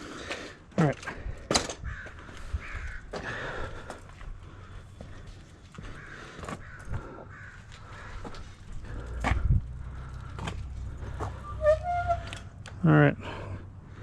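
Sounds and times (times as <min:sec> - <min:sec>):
crows cawing: 0:01.8 - 0:09.2.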